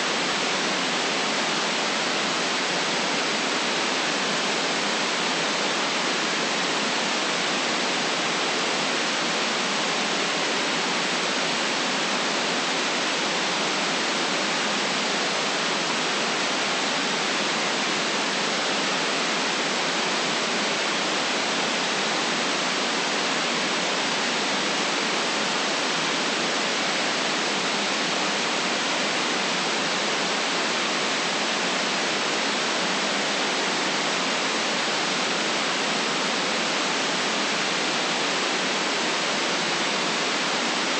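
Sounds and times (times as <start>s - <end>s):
white noise hiss: 0.0s - 40.9s.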